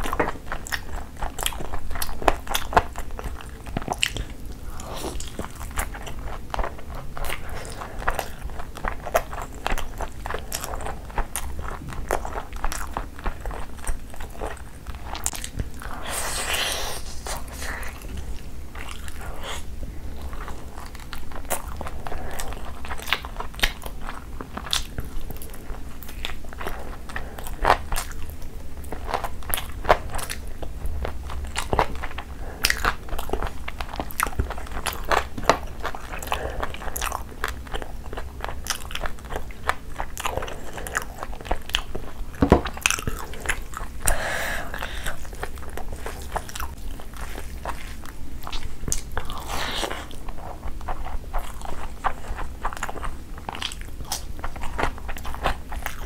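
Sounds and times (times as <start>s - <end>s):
chewing and biting: 0.0s - 44.2s, 44.8s - 56.0s.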